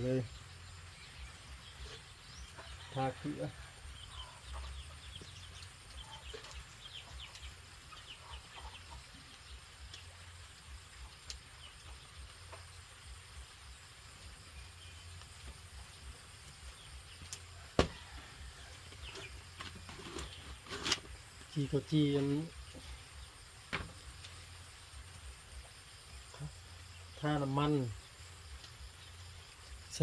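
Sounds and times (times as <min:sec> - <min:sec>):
chickens clucking: 0:04.2 - 0:09.3
sharp knock: 0:17.8 - 0:18.0.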